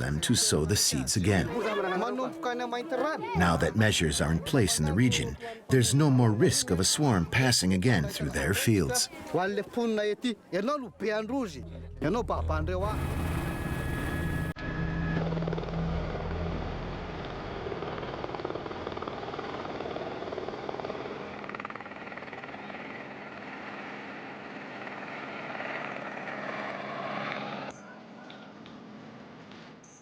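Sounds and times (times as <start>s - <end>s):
low throb: 11.5s - 17.9s
helicopter rotor and turbine: 12.8s - 27.7s.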